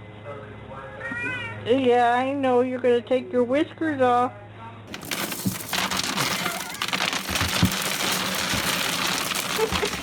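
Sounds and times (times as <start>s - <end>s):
dense crackling and rustling: 4.9s - 10.0s.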